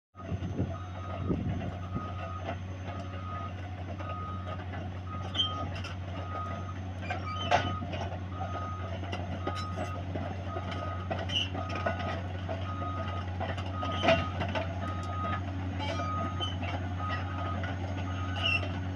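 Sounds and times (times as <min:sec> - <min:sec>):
backup alarm beeping: 0:00.2 - 0:12.0, 0:12.6 - 0:18.4
diesel engine drone: 0:00.2 - 0:18.9.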